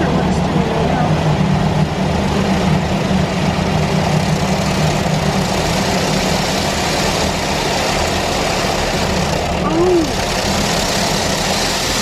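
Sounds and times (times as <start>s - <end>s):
low hum: 0.0s - 12.0s
water jets spraying a car: 4.0s - 12.0s.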